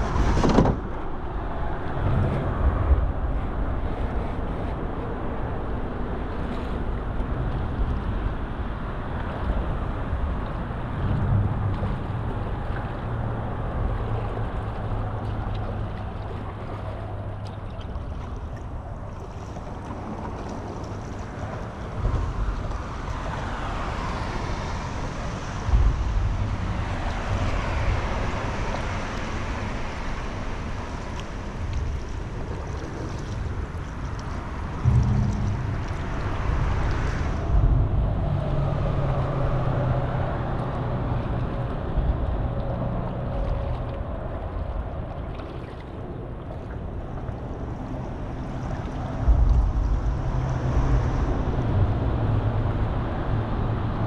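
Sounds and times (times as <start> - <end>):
water swishing around paddle: 0.0 - 53.3
wind rumbling on microphone: 0.0 - 54.0
dull knocks: 34.8 - 37.2.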